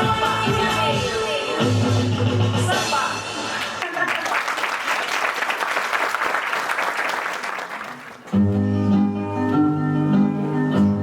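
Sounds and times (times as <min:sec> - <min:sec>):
audience applause: 0:03.6 - 0:08.4.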